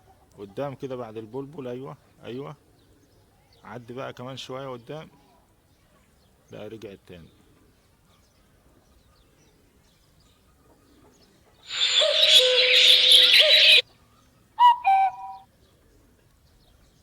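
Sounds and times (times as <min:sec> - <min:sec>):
birdsong phone ringtone: 0:11.7 - 0:13.8
pair of clear tones: 0:11.7 - 0:13.8.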